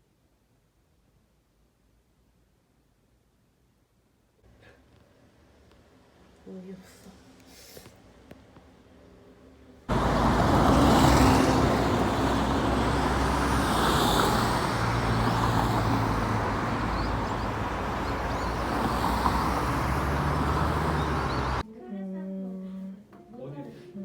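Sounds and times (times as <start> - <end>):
vehicle road noise: 9.9 - 21.6.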